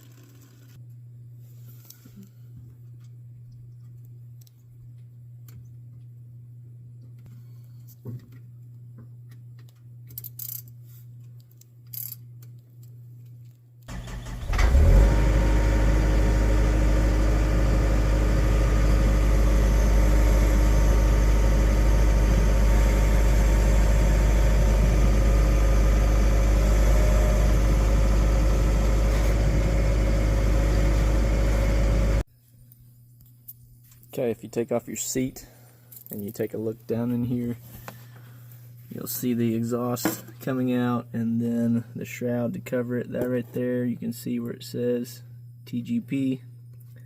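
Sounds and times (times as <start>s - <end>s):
low steady hum: 0.0s - 47.0s
gasoline engine starting and idling: 13.9s - 32.2s.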